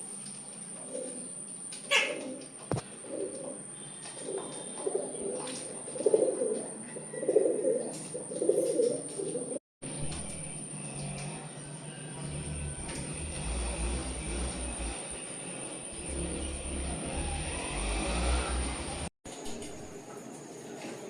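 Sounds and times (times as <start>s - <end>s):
pigeons cooing: 0.7s - 9.6s.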